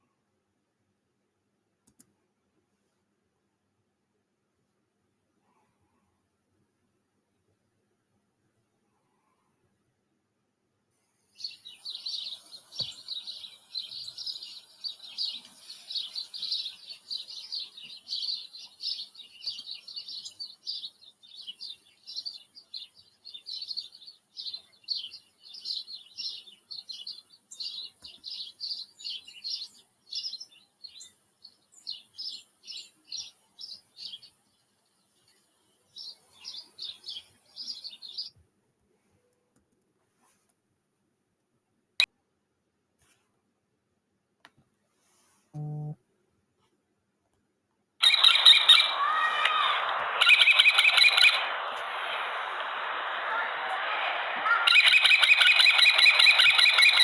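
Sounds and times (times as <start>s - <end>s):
recording hiss: 10.8s - 38.3s, 48.0s - 57.0s
bird chirping rapidly: 11.4s - 31.1s, 48.0s - 57.0s.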